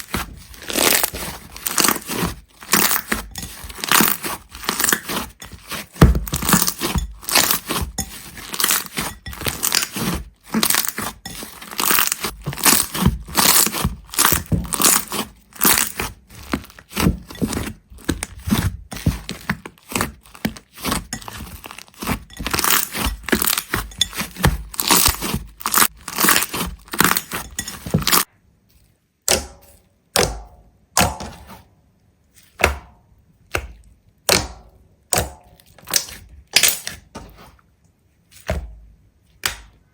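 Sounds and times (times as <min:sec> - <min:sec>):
brittle crackling and crunching: 0:00.0 - 0:29.0.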